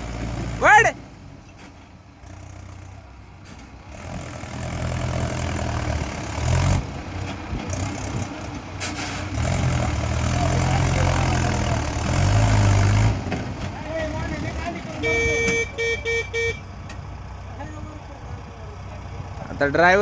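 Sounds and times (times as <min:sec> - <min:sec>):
tractor engine revving: 0:03.8 - 0:20.0.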